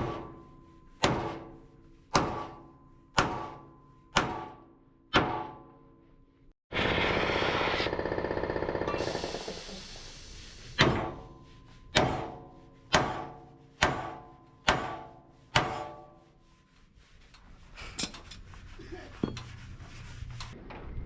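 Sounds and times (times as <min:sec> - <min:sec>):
hammer striking steel: 0:00.0 - 0:05.8, 0:10.8 - 0:16.3
light knocks and clinks: 0:19.1 - 0:19.6.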